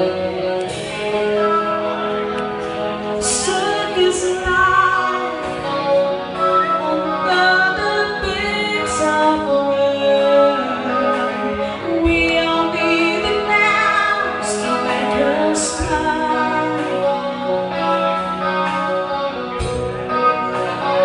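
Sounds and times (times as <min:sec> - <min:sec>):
live rock band playing: 0:00.0 - 0:21.0
woman singing: 0:03.2 - 0:18.0.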